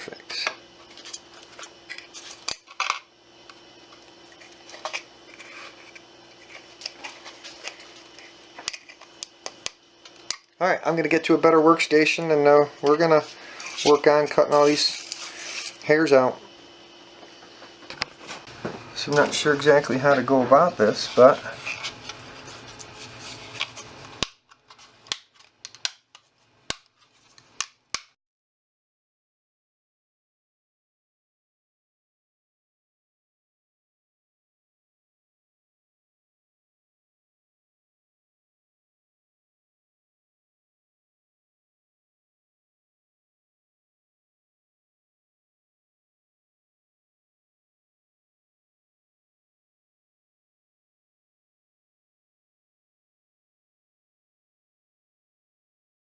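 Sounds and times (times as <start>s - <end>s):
faint steady hum: 0.0s - 28.0s
plastic clicks and cracks: 23.6s - 27.0s.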